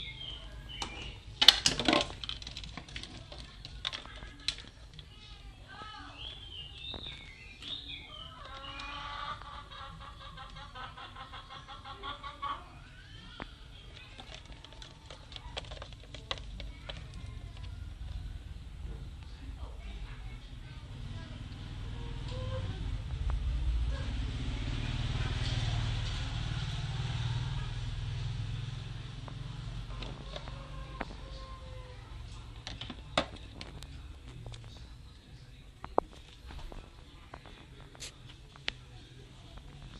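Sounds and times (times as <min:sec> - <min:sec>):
bird calls: 0:00.0 - 0:01.4, 0:05.9 - 0:14.7.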